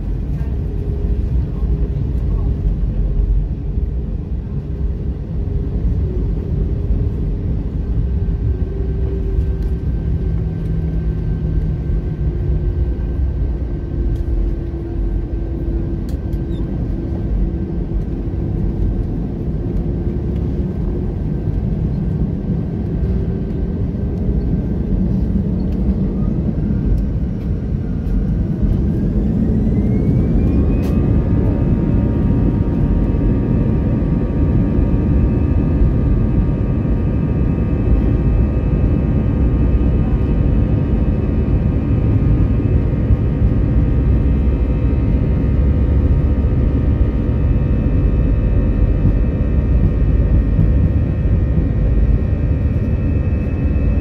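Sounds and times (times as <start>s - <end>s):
aircraft cabin low rumble: 0.0s - 54.0s
jet engines spooling up whine: 0.0s - 54.0s.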